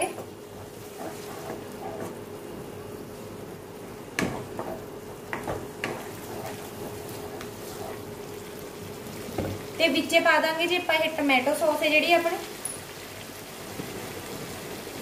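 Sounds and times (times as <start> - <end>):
wooden spatula stirring and scraping: 0.0 - 9.6
masala sizzling in a pan: 0.0 - 15.0.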